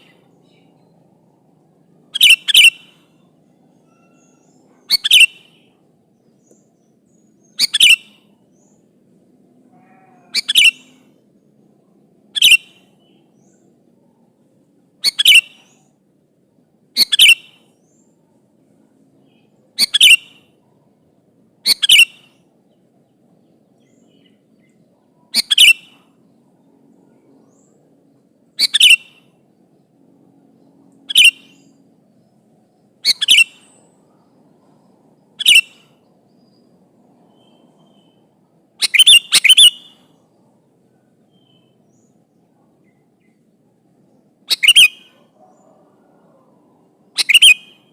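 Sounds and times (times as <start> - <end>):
bulbul calling: 2.1 - 5.8, 6.4 - 8.8, 9.8 - 11.1, 12.4 - 13.6, 15.0 - 15.9, 17.0 - 18.1, 19.3 - 20.6, 21.6 - 22.4, 23.8 - 26.2, 28.5 - 29.4, 30.9 - 31.8, 33.0 - 34.0, 35.2 - 36.6, 37.3 - 40.2, 44.4 - 46.3, 47.1 - 47.9.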